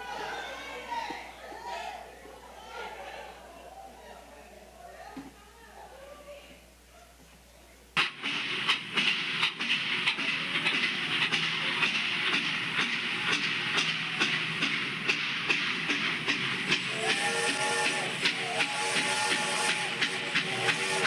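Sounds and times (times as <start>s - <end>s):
music: 8.0s - 21.0s
steam hissing: 8.0s - 21.0s
train wheels clacking on rails: 8.0s - 21.0s.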